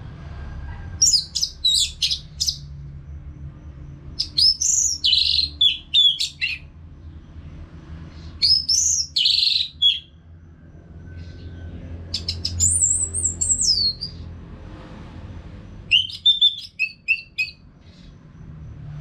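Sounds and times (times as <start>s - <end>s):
low steady hum: 0.0s - 6.0s.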